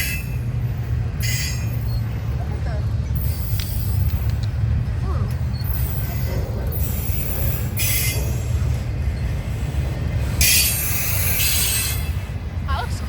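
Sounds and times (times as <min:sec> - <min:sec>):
high-pitched wheel squeal: 0:00.0 - 0:02.2, 0:05.5 - 0:09.3, 0:10.4 - 0:12.3
train wheels rumbling on rails: 0:00.0 - 0:13.0.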